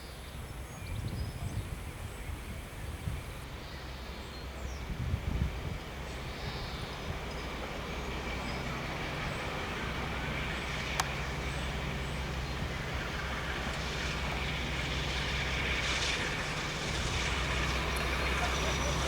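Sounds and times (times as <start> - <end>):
locomotive engine idling: 7.5 - 19.0.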